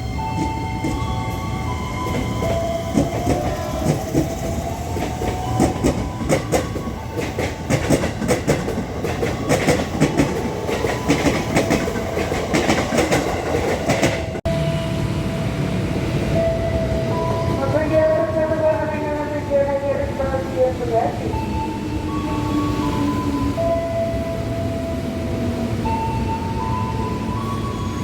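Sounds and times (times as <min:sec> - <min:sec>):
electric train running past: 0:00.0 - 0:28.0
wheels clicking over rail joints: 0:01.9 - 0:14.4.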